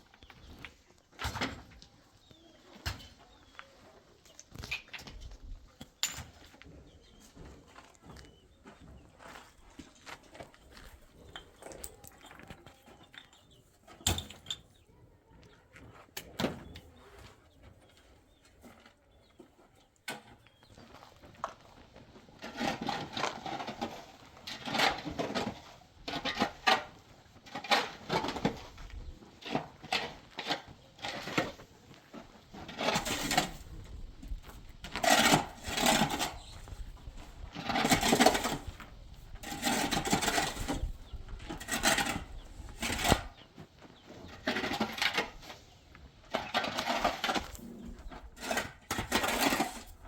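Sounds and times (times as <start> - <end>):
hand tool scraping wet mortar: 22.3 - 43.5, 44.2 - 45.6, 46.3 - 50.0.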